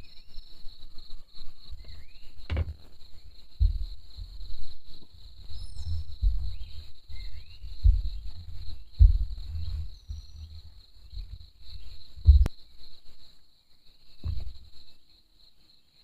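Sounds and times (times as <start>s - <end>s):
insect chorus chirring: 0.0s - 16.0s
low rumbling thuds: 1.8s - 12.5s, 14.2s - 14.8s.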